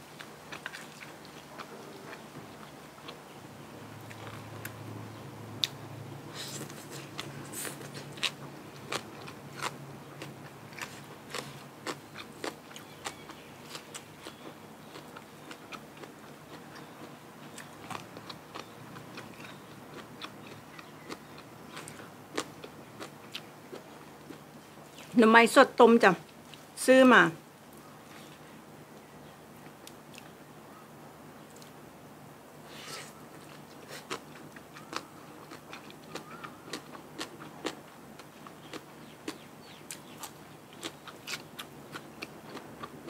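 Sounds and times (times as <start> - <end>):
person chewing crunchy food: 0.2 - 3.2, 4.0 - 4.8, 6.3 - 25.1, 32.7 - 43.0.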